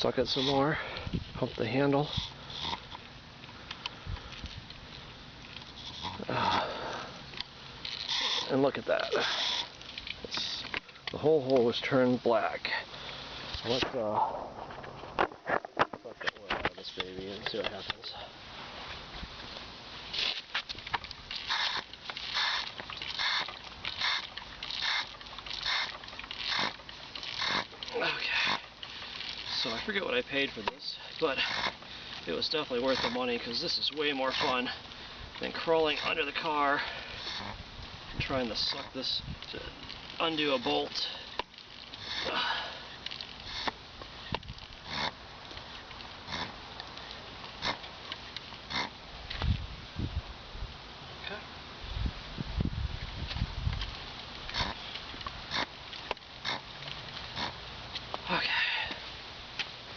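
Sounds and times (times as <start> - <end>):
hand pump air hiss: 0.3 - 1.2, 2.0 - 2.8, 5.6 - 10.8, 21.3 - 34.8, 35.4 - 37.6, 38.4 - 45.2.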